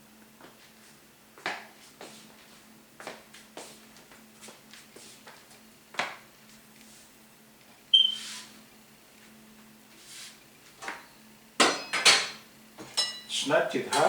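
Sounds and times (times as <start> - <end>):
clatter of pots and utensils: 11.6 - 13.2
ringing metal clink: 13.0 - 13.3.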